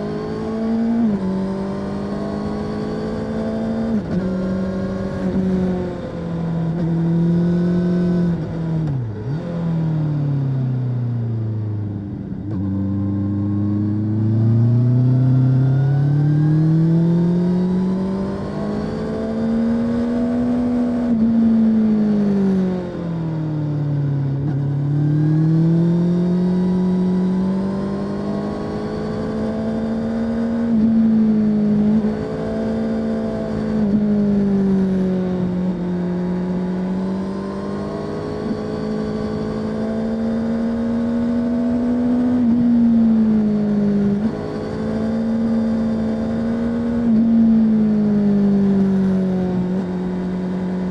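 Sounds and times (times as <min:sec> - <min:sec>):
motorcycle engine revving: 0:00.0 - 0:10.6, 0:24.3 - 0:50.9.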